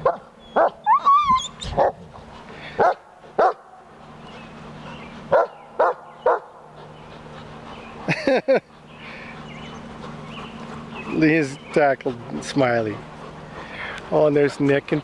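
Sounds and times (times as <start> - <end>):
puppy yelping: 0.0 - 2.0
puppies barking: 0.0 - 15.0.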